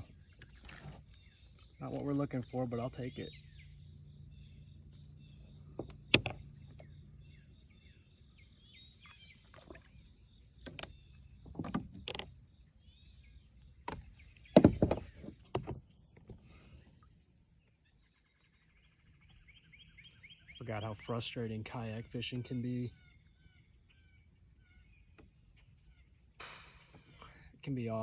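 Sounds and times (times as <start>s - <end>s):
bird chirps: 0.0s - 11.4s, 17.8s - 28.0s
insect drone: 0.0s - 28.0s
gear knocking in a kayak: 5.6s - 7.0s, 10.5s - 12.4s, 13.8s - 16.4s.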